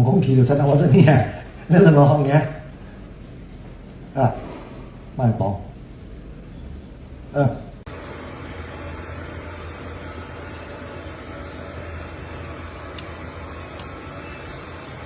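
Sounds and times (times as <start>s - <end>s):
low hum with hiss: 0.0s - 15.0s
faint clicks: 12.1s - 14.5s.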